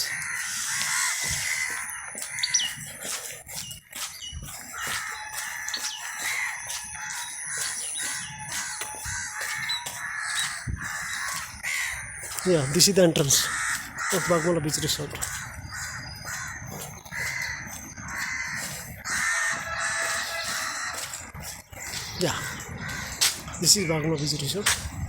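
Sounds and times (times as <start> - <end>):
birds chirping: 0.0 - 25.0
rooster crowing: 19.1 - 21.1.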